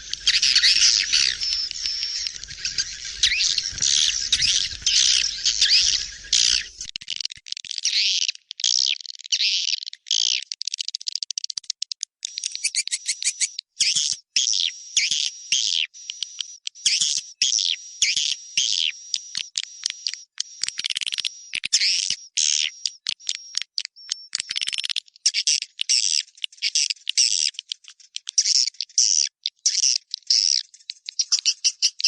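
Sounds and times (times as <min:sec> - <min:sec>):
swiftlets twittering chirps: 0:00.0 - 0:06.9
rapid clicking ticks: 0:00.0 - 0:07.6.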